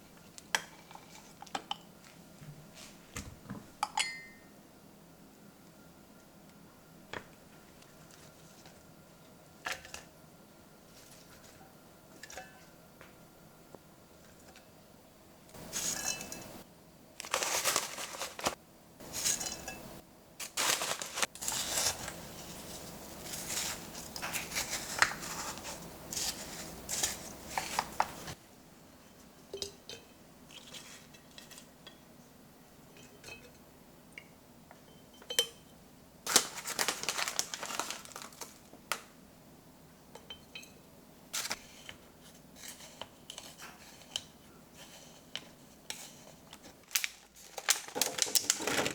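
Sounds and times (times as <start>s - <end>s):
crinkling and rustling: 17.2s - 19.6s, 20.4s - 28.4s, 36.3s - 39.1s, 41.4s - 48.9s.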